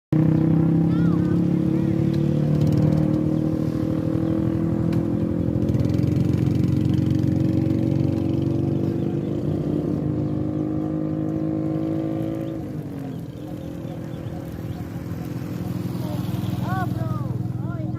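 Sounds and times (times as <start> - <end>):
vehicle engine running: 0.1 - 17.9.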